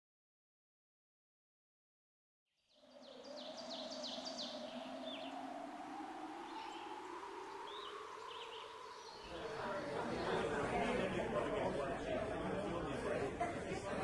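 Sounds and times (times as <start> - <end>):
bird chirping: 2.6 - 10.0.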